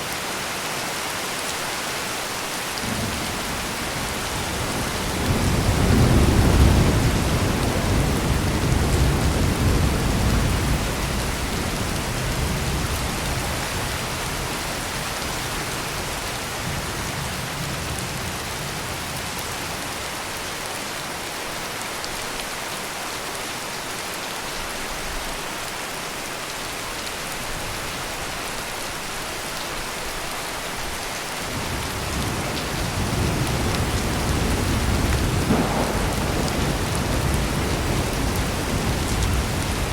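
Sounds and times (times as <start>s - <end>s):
heavy rain pouring: 0.0s - 39.9s
rolling thunder: 2.8s - 18.4s, 31.5s - 39.9s.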